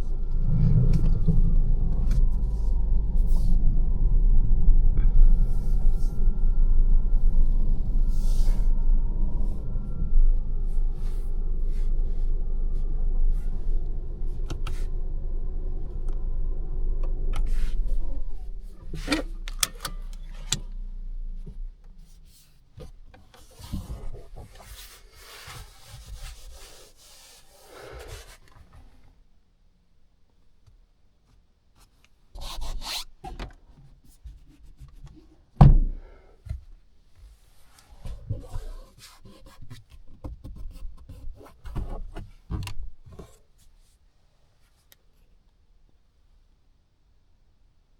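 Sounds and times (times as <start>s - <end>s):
car cabin road rumble: 0.0s - 25.0s
clicks and rubbing in cabin: 11.3s - 20.8s, 30.6s - 43.9s.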